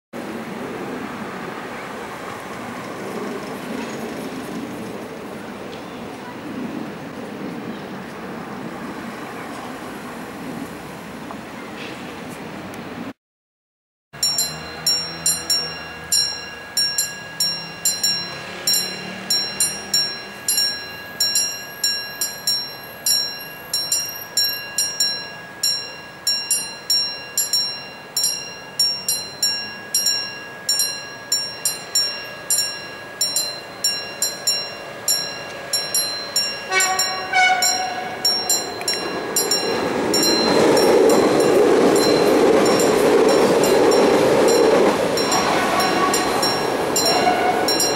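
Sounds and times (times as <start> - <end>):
train rumble: 0.2 - 13.1, 14.2 - 47.9
level crossing warning bell: 14.2 - 47.9
train horn: 36.7 - 38.4, 45.3 - 47.9.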